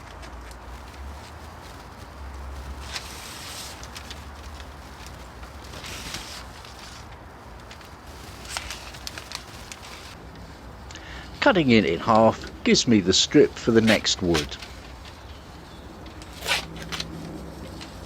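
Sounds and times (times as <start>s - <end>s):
sharp tape crackles: 0.2s - 10.2s
foil tape crinkling: 0.5s - 10.2s.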